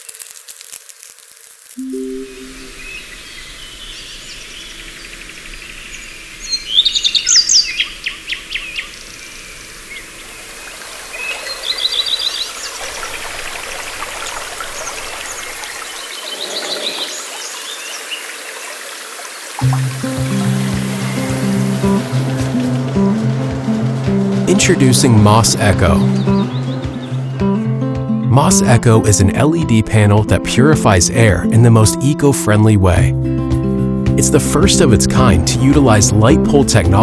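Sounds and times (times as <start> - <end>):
outdoor ambient hiss: 0.0 - 26.6
songbirds chirping and trilling: 2.4 - 29.0.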